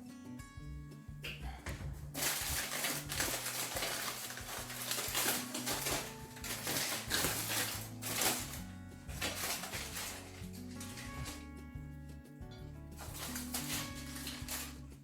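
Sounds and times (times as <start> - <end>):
background music: 0.0 - 15.0
utensil scraping in a pan: 2.1 - 11.4, 13.0 - 15.0.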